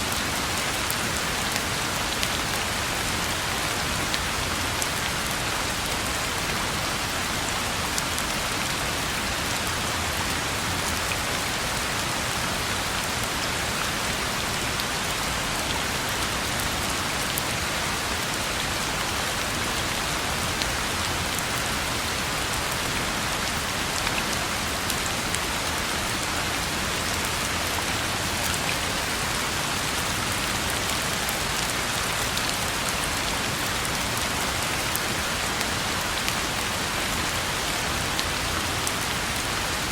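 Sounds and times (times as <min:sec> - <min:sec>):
rain falling on a road: 0:00.0 - 0:39.9.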